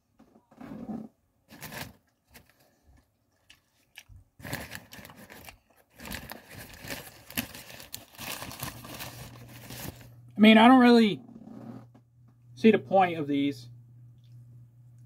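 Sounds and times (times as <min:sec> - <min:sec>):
paper wrapper crinkling: 0:01.5 - 0:10.2
crunchy chewing: 0:02.4 - 0:04.5.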